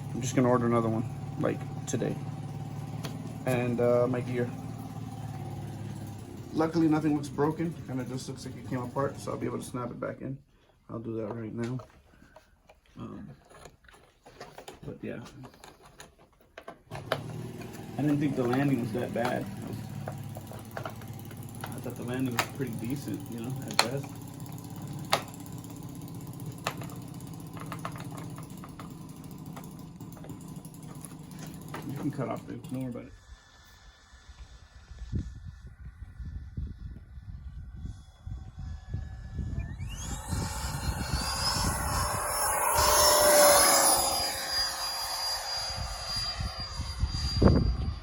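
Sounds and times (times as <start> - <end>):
model jet fan whining: 0.0 - 48.0
steady low hum: 33.0 - 48.0
wind buffeting microphone: 34.4 - 43.4, 45.6 - 48.0.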